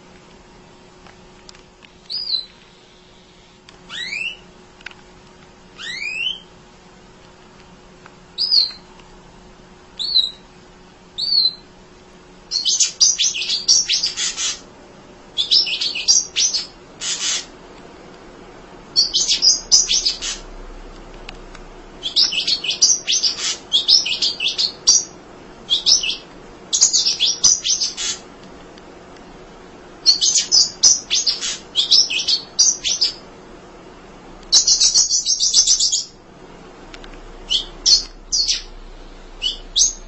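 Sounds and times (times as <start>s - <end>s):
bird chirping and twittering: 2.1s - 2.6s, 3.9s - 4.4s, 5.8s - 6.4s, 8.4s - 8.8s, 10.0s - 10.4s, 11.2s - 11.6s, 12.5s - 14.6s, 15.4s - 17.5s, 19.0s - 20.4s, 22.0s - 28.2s, 30.0s - 33.2s, 34.5s - 36.1s, 37.4s - 38.8s, 39.4s - 40.0s.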